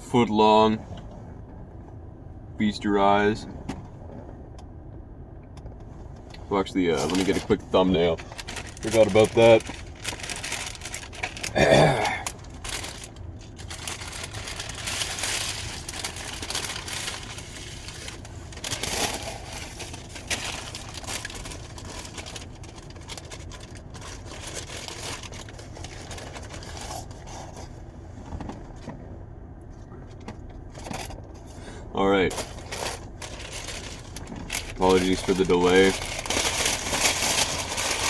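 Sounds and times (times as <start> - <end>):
paper packaging rustling: 6.9 - 27.8, 32.2 - 38.0.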